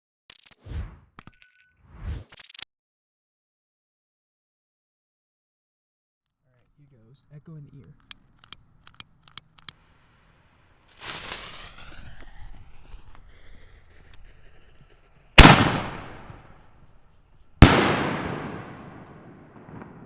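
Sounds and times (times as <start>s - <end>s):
firework hissing: 9.9s - 17.0s
loud firework booms echoing: 15.4s - 16.4s, 17.6s - 20.0s.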